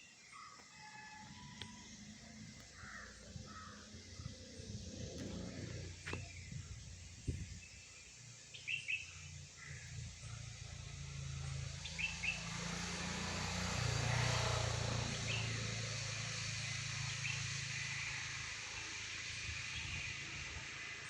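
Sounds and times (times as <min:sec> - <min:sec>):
vehicle engine running: 0:01.4 - 0:21.0
bird chirps: 0:01.7 - 0:09.9.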